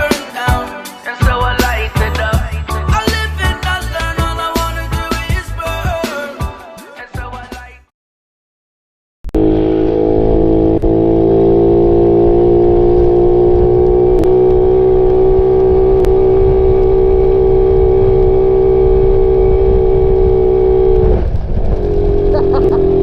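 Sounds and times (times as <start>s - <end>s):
motorcycle engine running: 9.3s - 23.0s.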